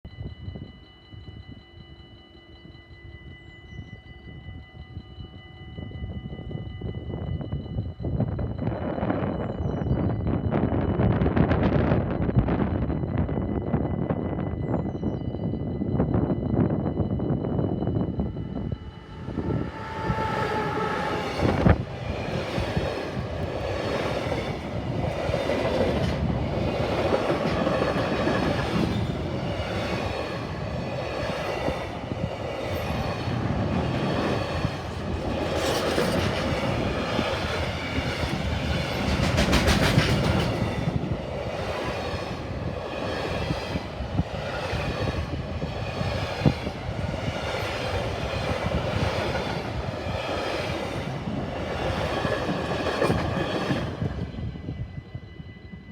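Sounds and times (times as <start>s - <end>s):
freight train rumbling past: 5.9s - 55.9s
wheels clacking over rail joints: 32.7s - 40.9s.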